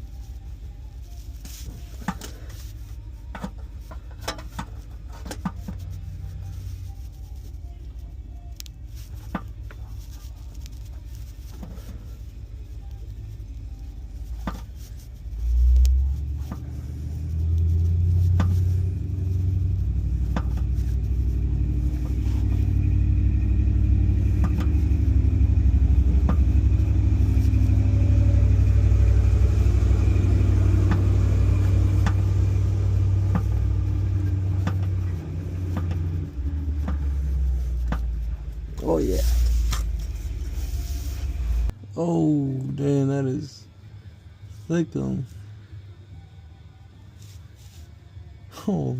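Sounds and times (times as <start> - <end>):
car engine low rumble: 0.0 - 48.9.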